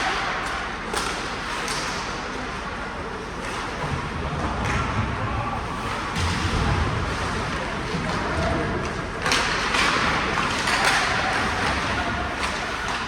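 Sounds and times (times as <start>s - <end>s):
crowd hubbub: 0.0s - 13.0s.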